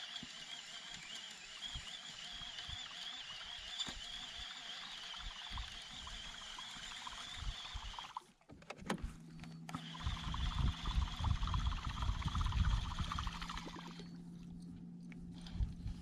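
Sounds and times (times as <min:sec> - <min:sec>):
low steady hum: 0:08.7 - 0:16.0.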